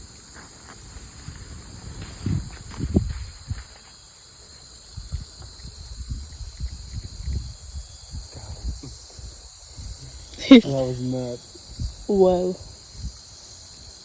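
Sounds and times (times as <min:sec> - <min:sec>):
insect chorus chirring: 0:00.0 - 0:14.0.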